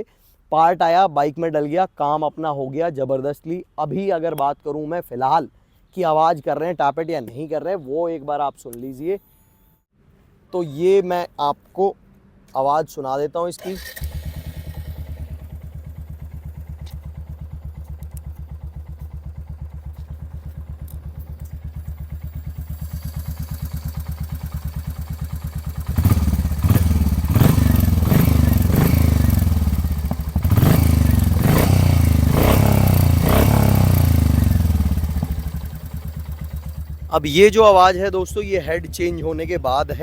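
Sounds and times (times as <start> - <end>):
motorcycle engine idling and revving: 14.0 - 40.0.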